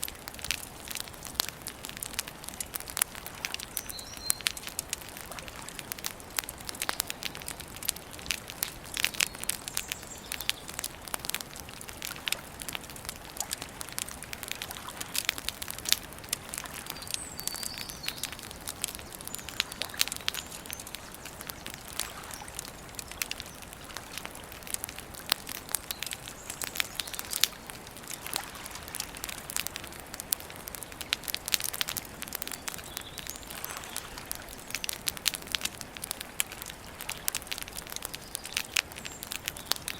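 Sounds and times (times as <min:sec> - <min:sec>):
campfire crackling and popping: 0:00.0 - 0:39.9
faint high bird chirps: 0:03.8 - 0:04.6, 0:16.9 - 0:18.4.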